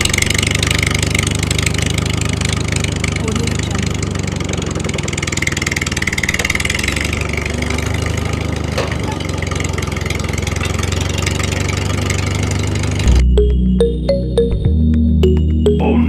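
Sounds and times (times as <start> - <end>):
engine idling: 0.0 - 13.3
electronic music: 13.1 - 16.0.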